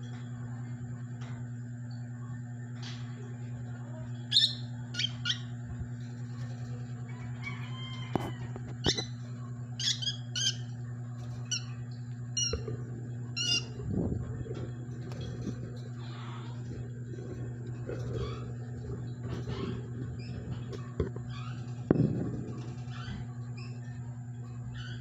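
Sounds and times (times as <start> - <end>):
steady low hum: 0.0 - 25.0
lovebirds squawking chirps: 4.3 - 5.6, 13.4 - 13.8.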